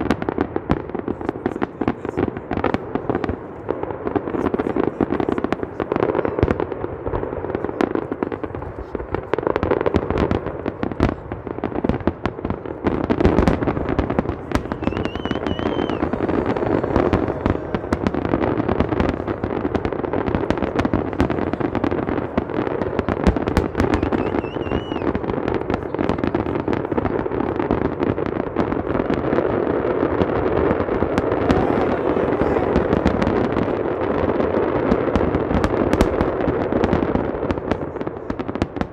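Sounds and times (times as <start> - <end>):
fireworks bangs and crackles: 0.0 - 38.9
high firework whistles: 13.9 - 19.6, 23.8 - 25.2.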